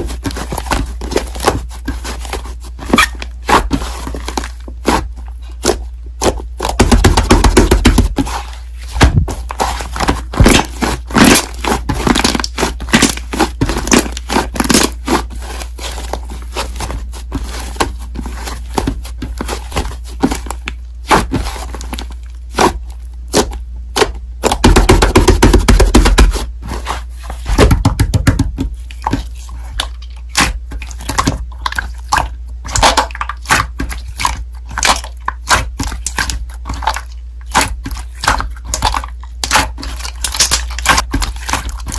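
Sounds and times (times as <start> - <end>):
steady low hum: 0.0 - 41.9
slime squished by hand: 28.8 - 41.9.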